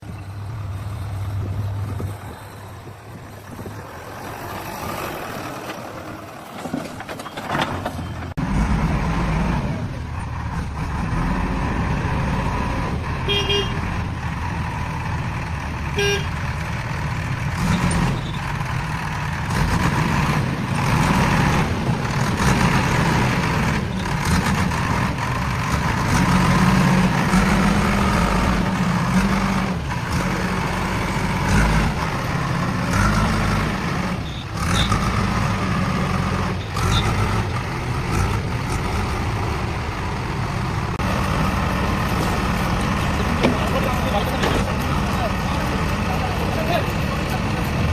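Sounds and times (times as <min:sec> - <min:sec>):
heavy vehicle engine running: 0:00.0 - 0:47.9
horn toots: 0:13.2 - 0:13.9, 0:16.0 - 0:16.4.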